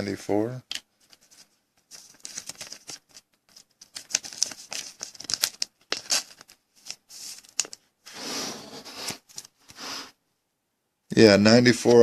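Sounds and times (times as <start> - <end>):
cards rustling: 0.7 - 10.0.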